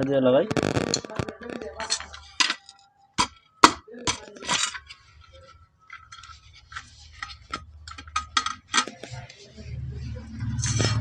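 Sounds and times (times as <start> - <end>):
metal parts scraping: 4.1 - 9.1, 10.4 - 11.0.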